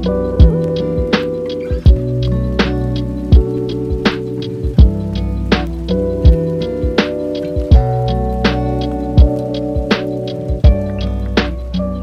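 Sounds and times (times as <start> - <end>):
kick drum: 0.4 - 2.1, 3.3 - 5.0, 6.2 - 7.0, 7.6 - 7.9, 9.2 - 10.9.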